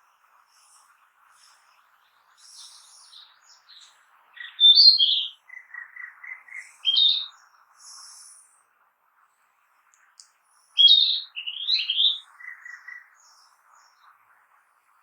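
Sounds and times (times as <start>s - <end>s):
flycatcher singing: 0.5s - 8.6s, 10.5s - 14.1s.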